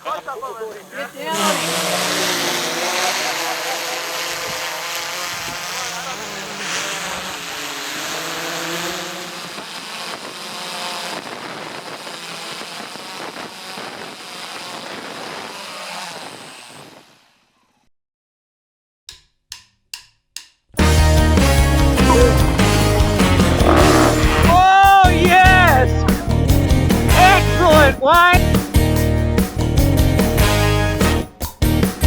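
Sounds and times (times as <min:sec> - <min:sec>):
dirt bike engine revving: 0:00.0 - 0:14.6, 0:20.8 - 0:27.9.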